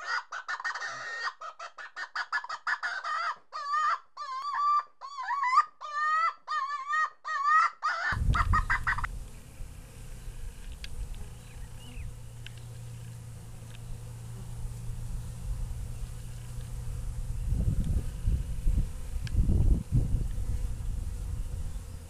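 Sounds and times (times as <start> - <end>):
bird calling: 6.7 - 9.1, 11.3 - 14.1
low steady rumble: 8.2 - 22.0.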